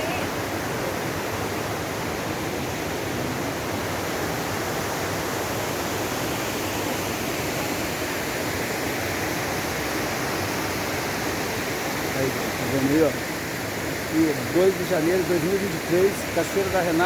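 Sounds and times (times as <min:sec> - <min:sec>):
waterfall roar: 0:00.0 - 0:17.0.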